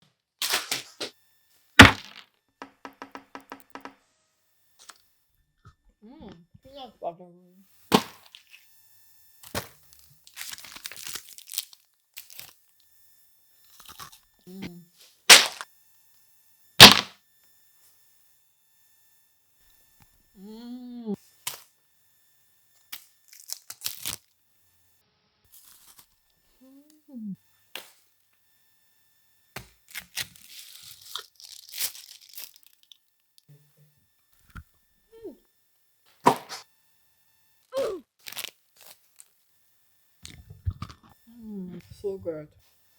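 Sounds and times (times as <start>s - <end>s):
snack packaging crinkling: 9.5s - 12.6s, 13.7s - 14.3s, 15.3s - 15.6s, 16.8s - 17.1s, 22.9s - 24.3s, 25.5s - 26.2s, 29.8s - 33.5s, 38.2s - 39.4s.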